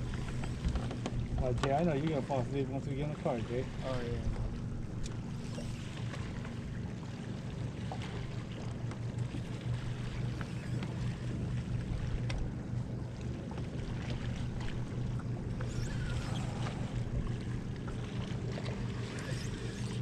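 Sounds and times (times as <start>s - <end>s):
boat motor humming: 0.0s - 20.0s
faint ticks: 5.0s - 5.8s, 12.2s - 12.5s.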